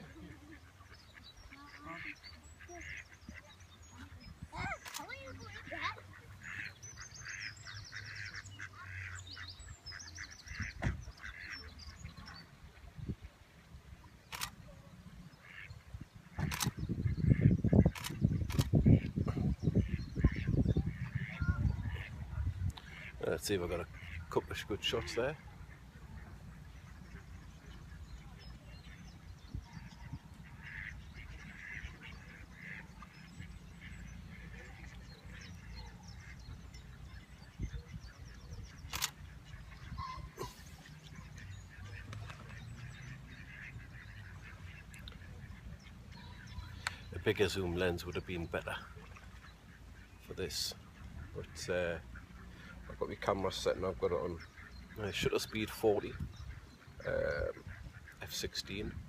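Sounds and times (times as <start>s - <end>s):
waterfowl short calls: 0.0s - 12.4s, 15.4s - 22.2s, 29.6s - 36.6s, 38.6s - 47.1s
ducks quacking: 0.0s - 13.6s, 14.3s - 59.0s.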